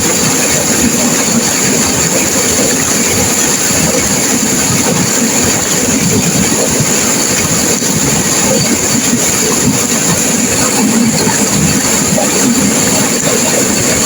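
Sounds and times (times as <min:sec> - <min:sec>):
river water rushing and crashing: 0:00.0 - 0:14.0.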